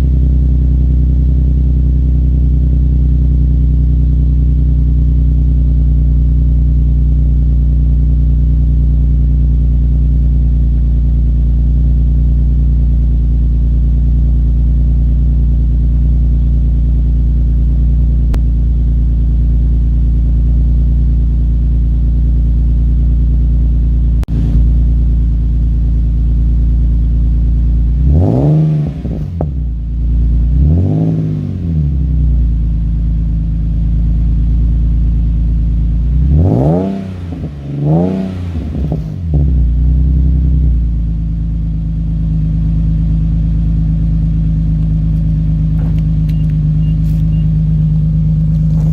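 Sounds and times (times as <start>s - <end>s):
car engine idling: 0.0s - 48.9s
engine revving: 27.9s - 29.7s, 30.4s - 32.0s, 36.1s - 40.8s, 44.8s - 48.9s.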